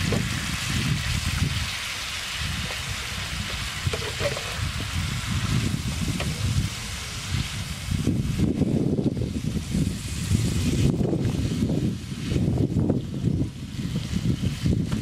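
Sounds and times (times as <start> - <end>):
greens sizzling in a frying pan: 0.0 - 15.0
spatula stirring in a pan: 2.5 - 5.4.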